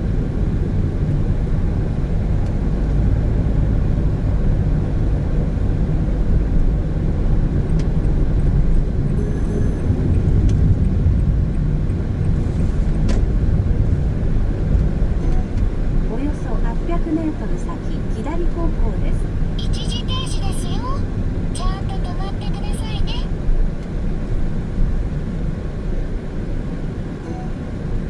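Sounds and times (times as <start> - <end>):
car engine drone in cabin: 0.0 - 28.0
tyre and road rumble: 9.8 - 16.6.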